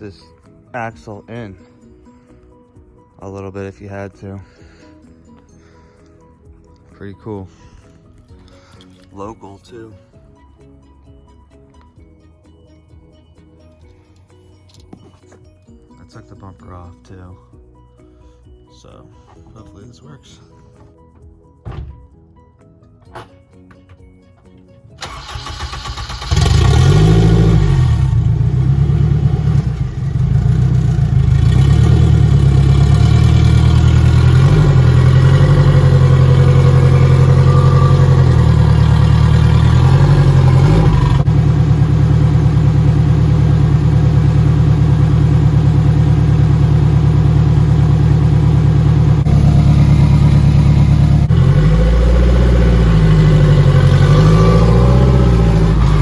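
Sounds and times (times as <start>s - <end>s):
race car engine revving: 25.2s - 56.0s.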